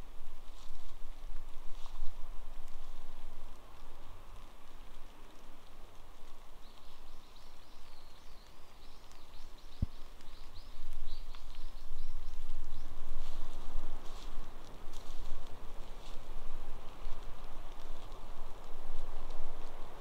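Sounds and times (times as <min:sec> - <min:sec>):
light rain hiss: 0:00.0 - 0:20.0
rustling: 0:09.8 - 0:20.0.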